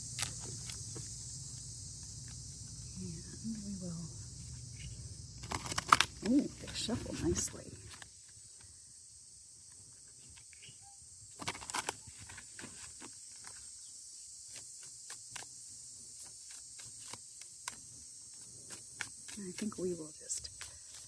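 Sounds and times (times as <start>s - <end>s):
crickets chirring: 0.0s - 21.0s
cards being shuffled: 11.3s - 13.7s, 16.2s - 17.9s.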